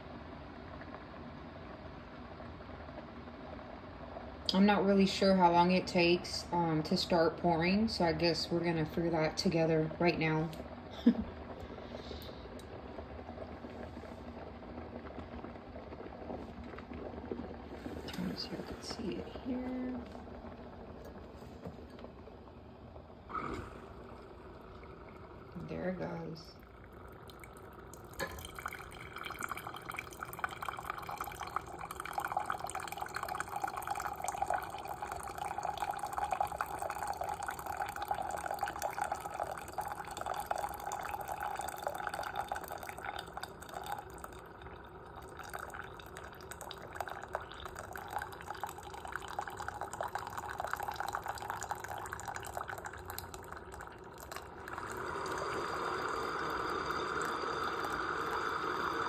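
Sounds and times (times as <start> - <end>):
coffee dripping into a cup: 23.4 - 59.0.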